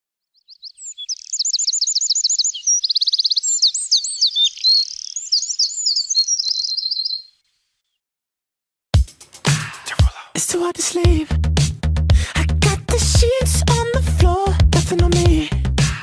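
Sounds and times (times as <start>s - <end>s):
songbirds singing: 0.3s - 8.0s.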